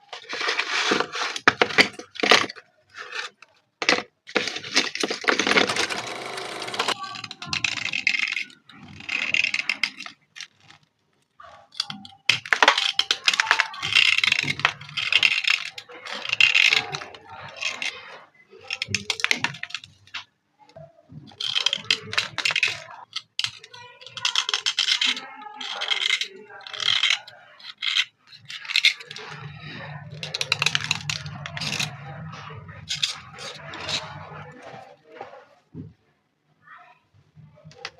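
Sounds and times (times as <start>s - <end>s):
gritty scraping of slate pencils: 0.0s - 10.8s, 11.7s - 18.0s, 18.6s - 20.2s, 21.3s - 34.8s.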